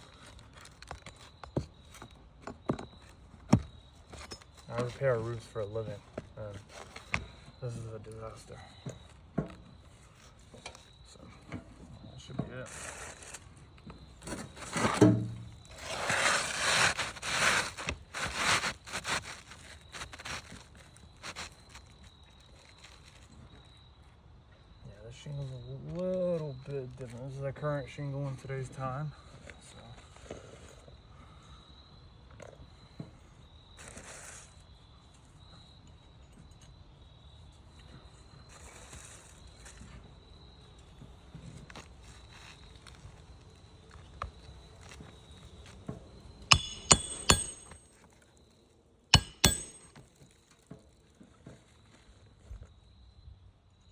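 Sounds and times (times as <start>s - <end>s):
crickets chirping faintly: 0.0s - 53.9s
roof shingles scraping: 15.7s - 21.8s.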